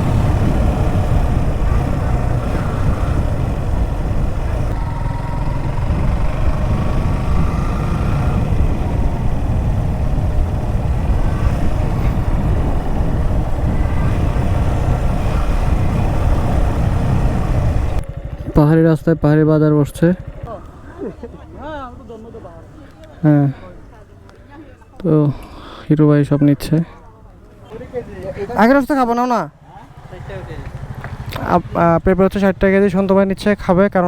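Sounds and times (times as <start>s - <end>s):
wind rumble on microphone: 0.0s - 18.7s
motorcycle engine running: 0.0s - 23.2s, 29.5s - 33.0s.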